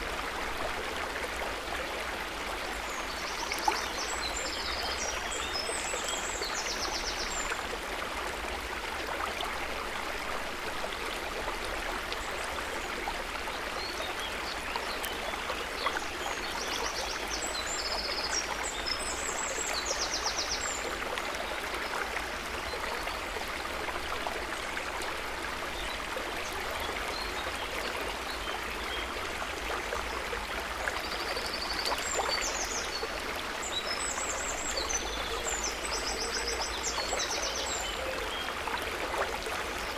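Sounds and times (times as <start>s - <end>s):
river water running: 0.0s - 39.9s.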